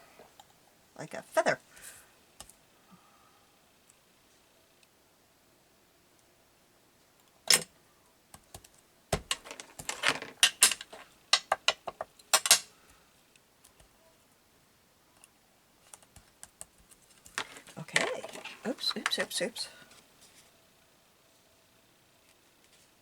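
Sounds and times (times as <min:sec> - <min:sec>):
paper rustling: 0:09.2 - 0:11.1, 0:16.9 - 0:19.4
craft tools clicking and tapping: 0:09.2 - 0:12.7.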